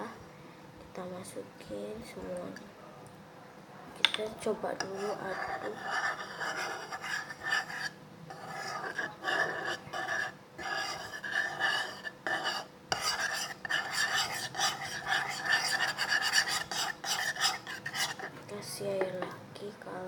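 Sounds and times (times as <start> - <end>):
utensil scraping a container: 4.8 - 18.3.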